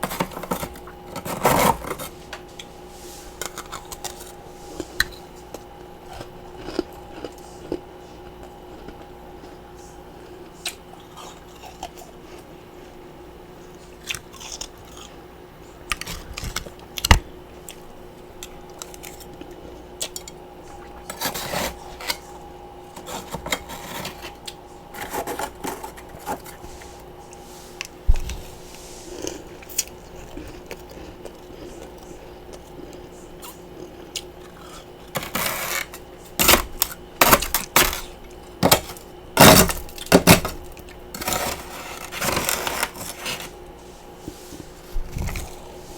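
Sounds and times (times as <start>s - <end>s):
faint steady hum: 0.0s - 45.9s
crunching ice chunks: 35.1s - 43.5s.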